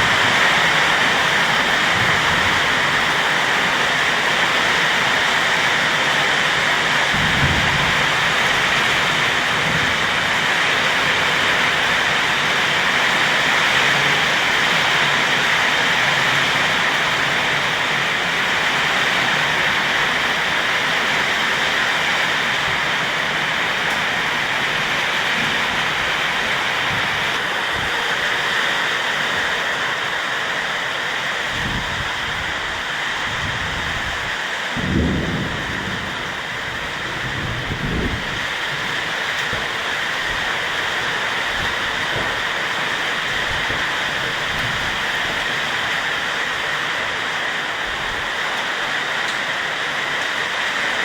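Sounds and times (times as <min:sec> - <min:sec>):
low thunder rumbles: 0:00.0 - 0:05.6, 0:06.4 - 0:13.0, 0:31.4 - 0:46.7
heavy rain pouring: 0:00.0 - 0:51.0.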